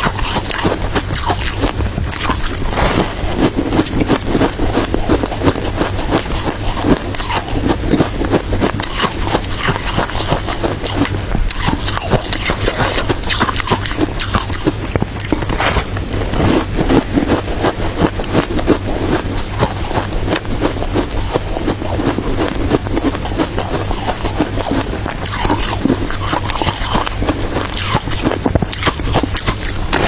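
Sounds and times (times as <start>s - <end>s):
chewing crunchy shaved ice: 0.0s - 30.0s.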